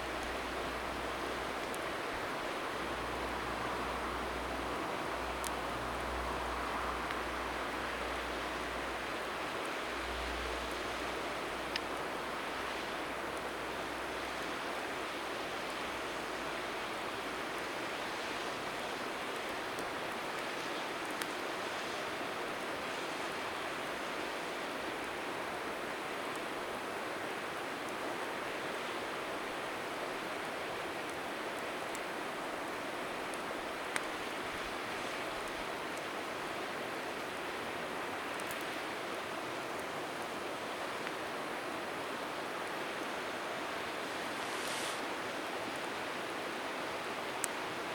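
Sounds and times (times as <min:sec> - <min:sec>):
flowing river rushing: 0:00.0 - 0:47.9
bonfire popping: 0:43.7 - 0:46.0.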